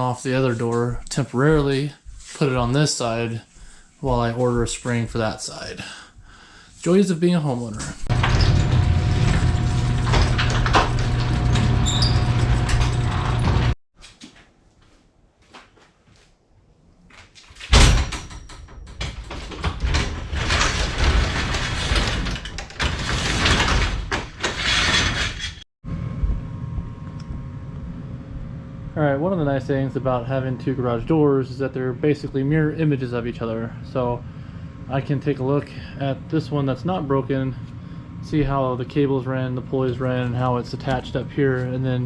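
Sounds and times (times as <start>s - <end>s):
door rattling along tracks: 8.0s - 13.8s, 17.8s - 25.6s
garage door opener motor hum: 8.0s - 13.8s, 18.0s - 25.6s.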